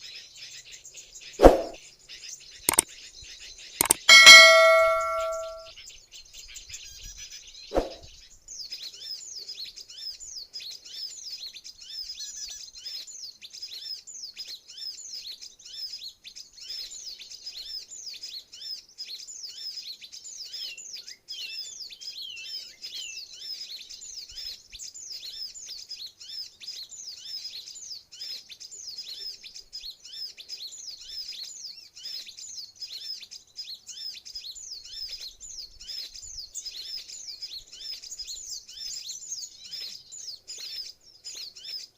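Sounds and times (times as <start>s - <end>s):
sharp knock: 1.4s - 1.8s, 3.8s - 5.7s.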